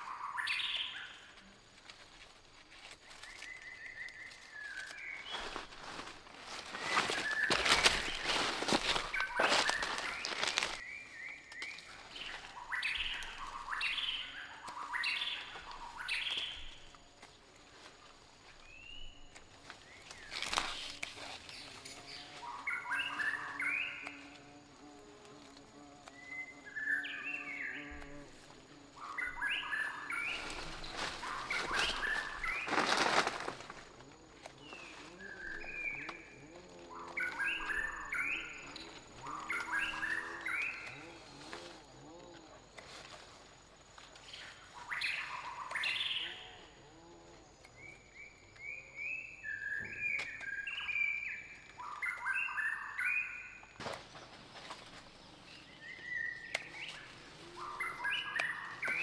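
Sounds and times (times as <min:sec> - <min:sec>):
birds chirping: 0:00.0 - 0:17.0, 0:26.1 - 0:41.7, 0:47.8 - 0:59.0.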